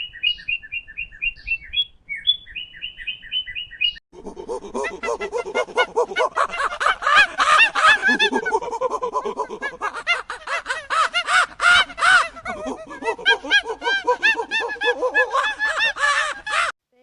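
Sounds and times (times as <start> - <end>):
flock of birds calling: 4.6 - 8.5, 9.3 - 16.7.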